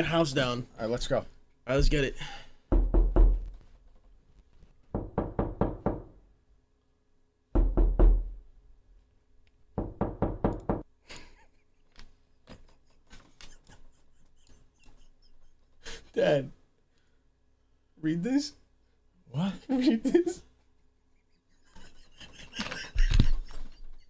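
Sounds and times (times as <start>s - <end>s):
knuckles rapping on door: 2.7s - 3.6s, 4.9s - 6.2s, 7.6s - 8.4s, 9.8s - 10.9s.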